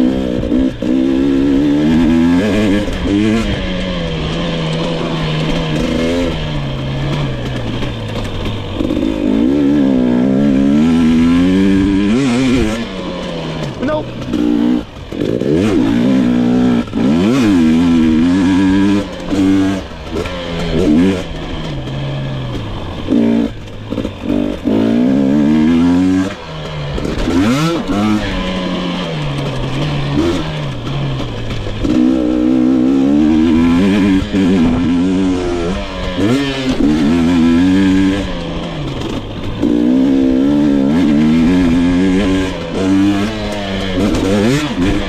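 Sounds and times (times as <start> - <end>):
two-stroke engine revving: 0.0 - 45.0.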